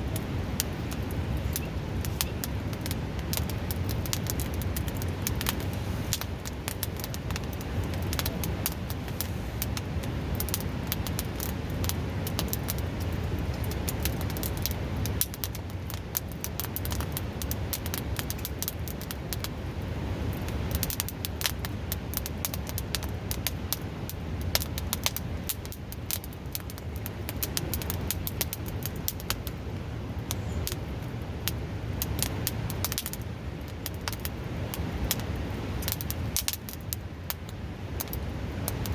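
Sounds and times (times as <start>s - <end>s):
river rushing: 0.0s - 18.5s
campfire crackling and popping: 0.0s - 38.9s.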